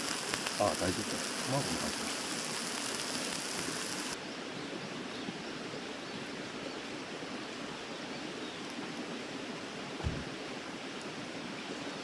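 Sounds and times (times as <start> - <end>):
high hiss: 0.0 - 4.2.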